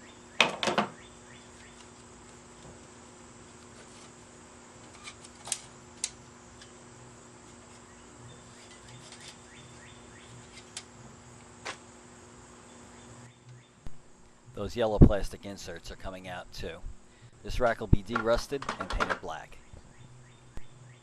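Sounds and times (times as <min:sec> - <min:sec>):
steady low hum: 0:00.0 - 0:21.0
hand tools clicking and tapping: 0:18.1 - 0:19.4.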